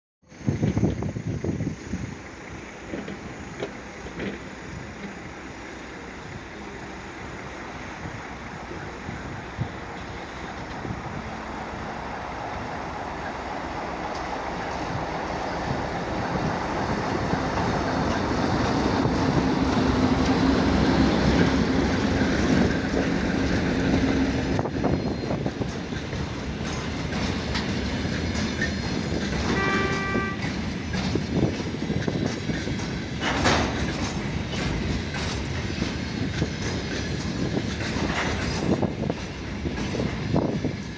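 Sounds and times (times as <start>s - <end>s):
diesel locomotive engine: 0.3s - 40.9s
wagon wheels clacking over rail joints: 25.4s - 40.5s
locomotive horn note: 29.4s - 30.5s.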